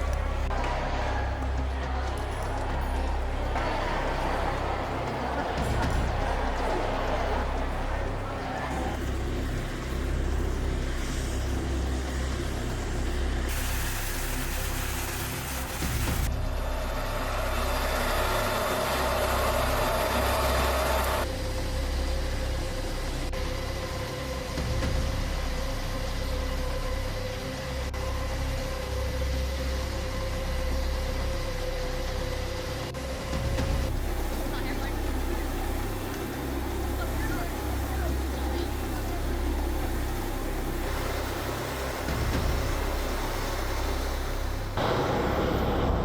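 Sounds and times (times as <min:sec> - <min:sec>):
aircraft engines droning: 0:00.0 - 0:23.3, 0:32.9 - 0:46.0
rushing hiss: 0:07.9 - 0:21.2, 0:33.0 - 0:46.0.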